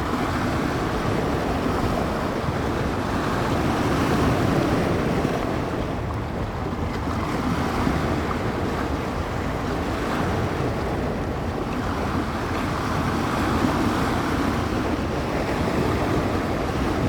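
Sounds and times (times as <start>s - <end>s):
waves breaking on shore: 0.0s - 17.0s
wind buffeting microphone: 0.0s - 17.0s.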